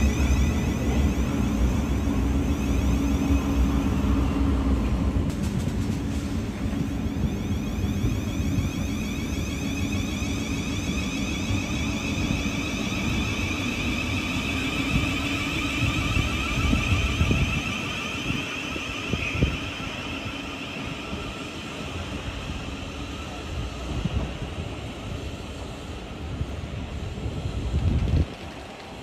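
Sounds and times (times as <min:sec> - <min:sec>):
high-pitched train whine: 0:00.0 - 0:29.0
train rumble: 0:00.0 - 0:29.0.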